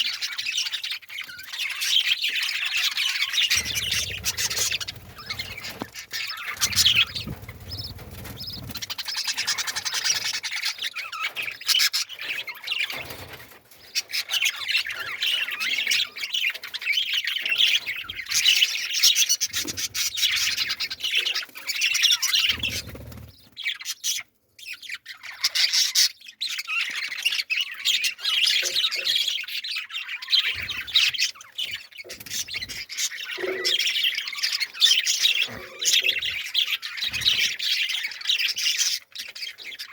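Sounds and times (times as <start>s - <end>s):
small birds chirping and squawking: 0.0s - 39.9s
low thumps: 3.6s - 5.7s.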